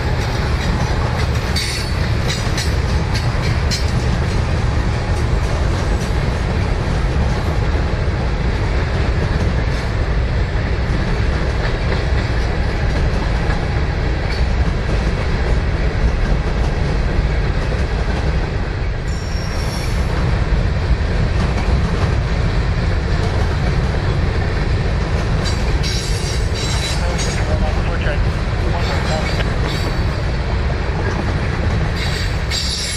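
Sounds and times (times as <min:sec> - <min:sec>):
wheels clicking over rail joints: 0:00.0 - 0:07.6, 0:21.2 - 0:32.9
freight train rumbling past: 0:00.0 - 0:32.9
high wheel squeal: 0:19.1 - 0:20.1, 0:32.0 - 0:32.9.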